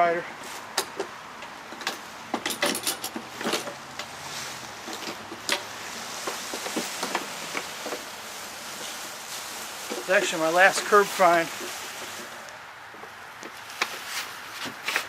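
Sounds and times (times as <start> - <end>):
lawnmower metal clicks and knocks: 0.7 - 8.2.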